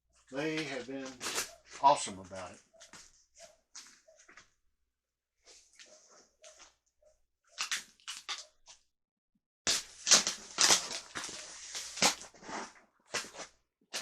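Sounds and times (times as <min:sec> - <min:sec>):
cardboard packaging being handled: 0:09.7 - 0:14.0.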